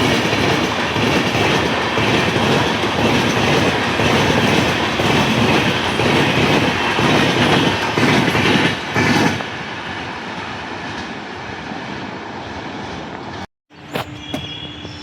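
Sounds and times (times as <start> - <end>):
train wheels clattering: 0.0 - 9.5.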